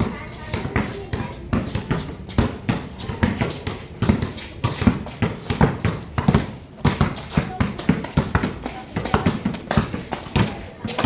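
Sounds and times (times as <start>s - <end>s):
basketballs bouncing on hard court: 0.0s - 11.0s
feet running: 0.0s - 11.0s.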